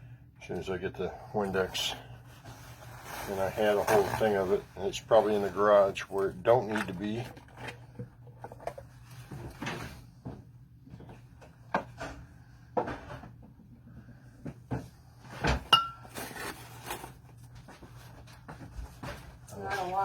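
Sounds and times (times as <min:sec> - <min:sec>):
household knocks and clatter: 0:06.6 - 0:13.6.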